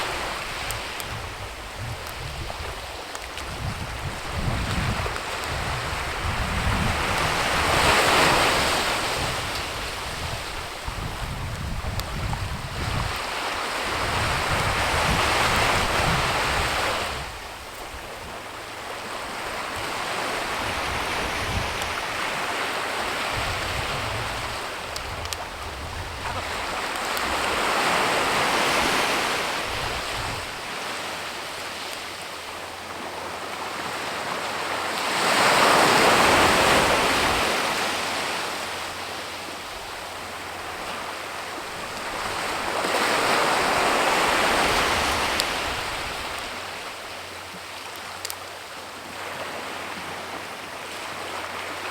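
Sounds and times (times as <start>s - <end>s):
wind buffeting microphone: 0.0s - 30.8s
gusting wind: 0.0s - 48.4s.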